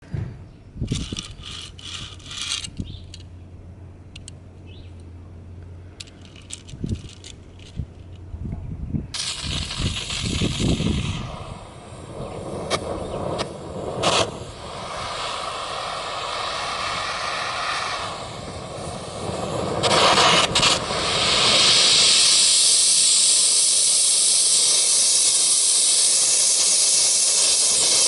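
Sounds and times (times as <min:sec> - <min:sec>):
small hard objects clinking: 0:06.0 - 0:08.2
gas torch hissing: 0:09.1 - 0:28.0.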